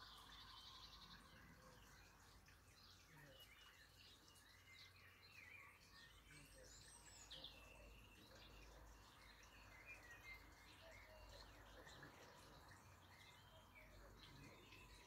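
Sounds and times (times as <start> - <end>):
faint birdsong chirps and whistles: 0.0 - 15.0.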